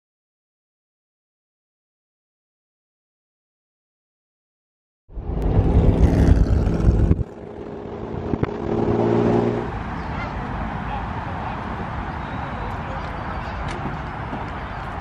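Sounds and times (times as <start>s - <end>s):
car engine droning: 5.1s - 12.2s
road and wind noise: 5.1s - 15.0s.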